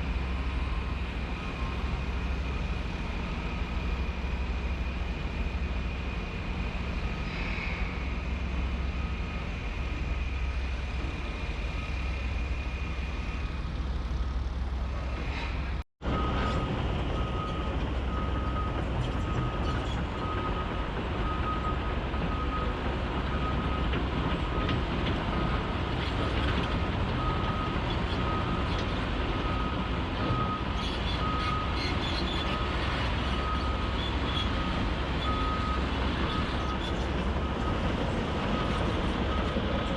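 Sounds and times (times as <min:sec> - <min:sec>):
heavy machinery diesel engines rumbling: 0:00.0 - 0:39.9
reversing alarm beeping: 0:33.4 - 0:36.8.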